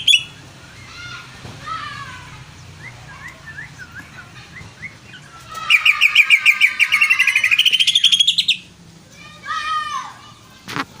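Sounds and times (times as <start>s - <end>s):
bird singing chirps: 0.0s - 1.0s, 2.6s - 8.7s.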